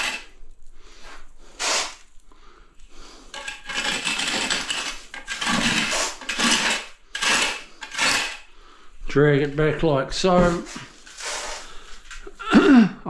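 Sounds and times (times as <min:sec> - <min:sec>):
trowel scraping tile: 0:00.0 - 0:00.3, 0:01.6 - 0:02.0, 0:03.2 - 0:08.5, 0:09.5 - 0:12.4.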